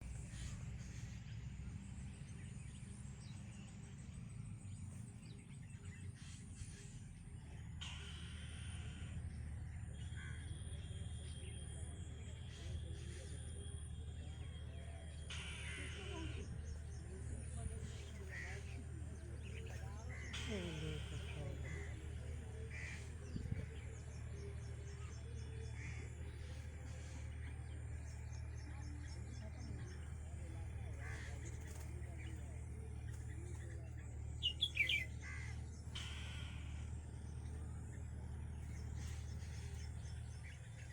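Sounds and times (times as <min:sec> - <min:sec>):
faint bird chirps: 0:00.0 - 0:40.9
steady low rumble: 0:00.0 - 0:40.9.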